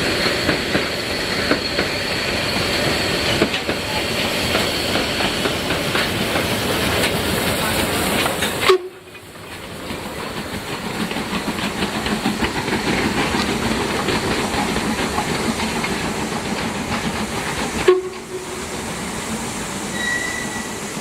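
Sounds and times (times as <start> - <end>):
steam hissing: 0.0 - 21.0
train wheels clattering on rails: 0.0 - 21.0.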